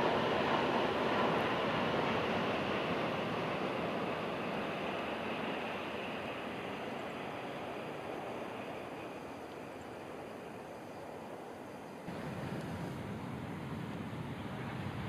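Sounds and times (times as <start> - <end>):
train rushing past: 0.0 - 10.2.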